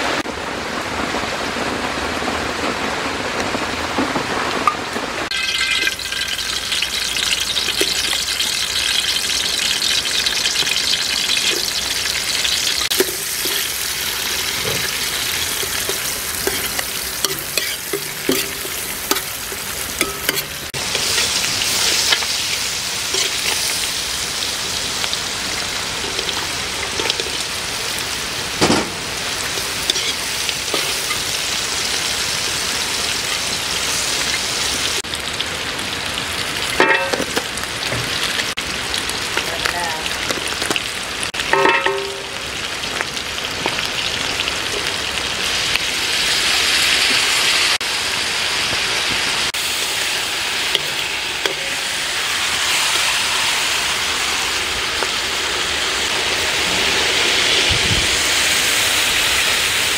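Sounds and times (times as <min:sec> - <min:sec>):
food sizzling in hot oil: 0:05.2 - 0:59.9
spatula scraping a metal pan: 0:14.5 - 0:22.3, 0:29.6 - 0:31.3
loud knock on pan: 0:28.6 - 0:29.1.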